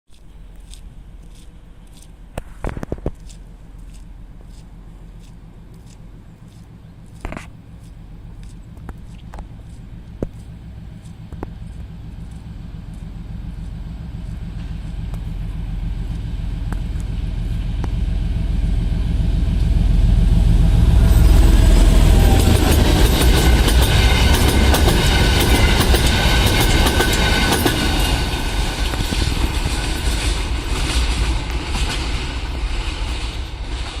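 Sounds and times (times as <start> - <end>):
freight cars clicking wheels: 0.2 - 18.2, 21.9 - 34.0
diesel locomotive engine passing: 3.4 - 34.0
wheels squealing on rails: 19.5 - 34.0.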